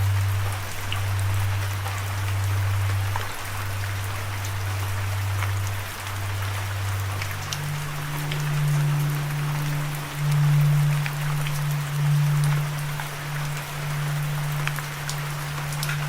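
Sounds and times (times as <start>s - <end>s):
ambient music low note: 0.0s - 16.0s
steady rain: 0.0s - 16.0s.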